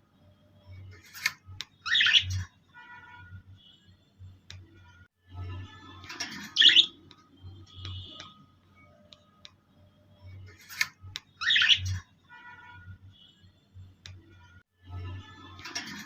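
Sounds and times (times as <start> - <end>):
birds chirping: 1.8 - 2.4, 6.2 - 7.1, 11.3 - 12.0.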